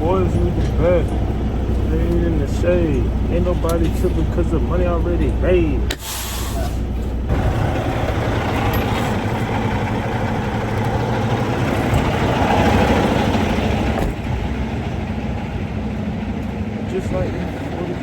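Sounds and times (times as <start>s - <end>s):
truck diesel engine running: 0.0s - 18.0s.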